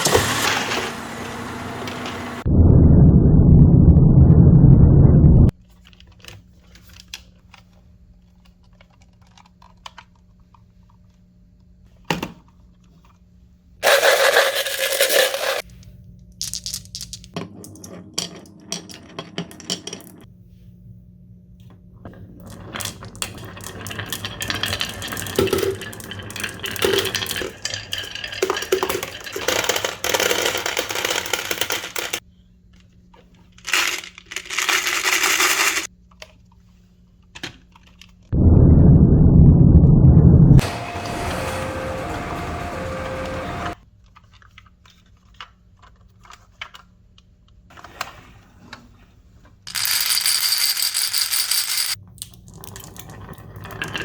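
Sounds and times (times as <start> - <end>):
marbles clicking and rattling: 23.3 - 32.2, 33.7 - 35.9, 49.7 - 52.0.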